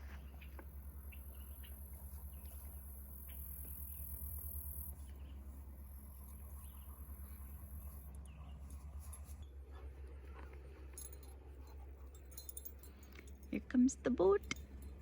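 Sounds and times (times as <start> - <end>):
faint low rumble: 0.0 - 15.0
insects trilling: 0.8 - 8.1.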